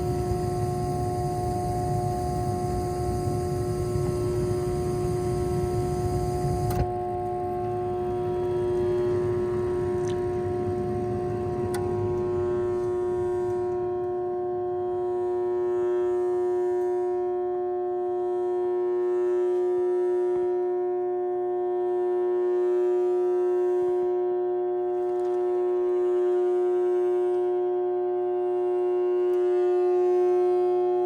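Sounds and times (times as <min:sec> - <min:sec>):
blower motor humming: 0:00.0 - 0:15.8
click: 0:11.6 - 0:11.9.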